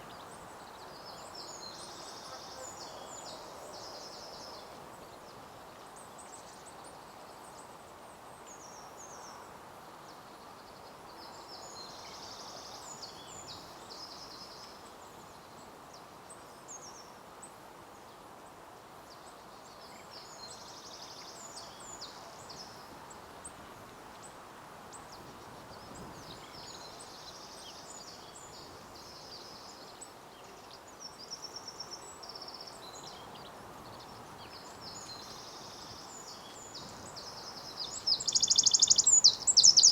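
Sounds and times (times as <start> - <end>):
faint outdoor hiss: 0.0 - 39.9
birds trilling and chirping: 37.3 - 39.9.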